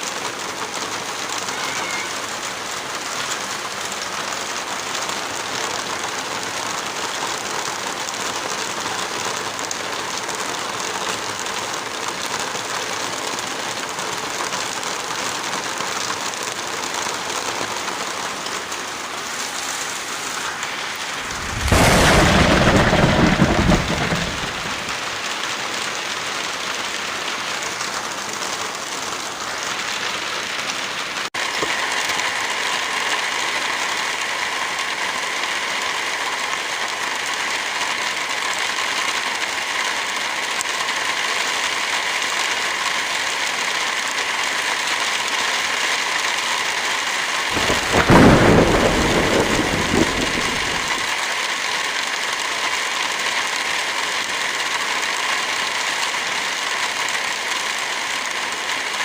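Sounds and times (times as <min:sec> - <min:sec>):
heavy rain falling: 0:00.0 - 0:59.0
loud thunderclap: 0:21.1 - 0:25.2, 0:47.5 - 0:51.1.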